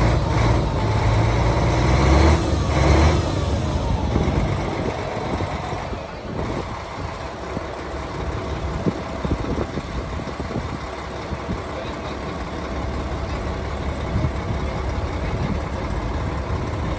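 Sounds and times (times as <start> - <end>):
diesel truck engine idling: 0.0 - 16.9.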